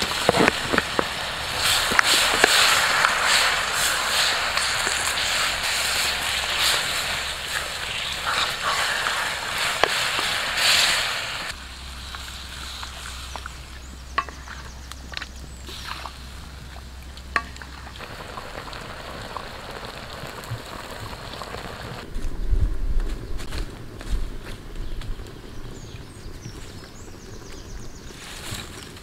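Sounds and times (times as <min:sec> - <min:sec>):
chicken sizzling in a wok: 0:00.8 - 0:13.4.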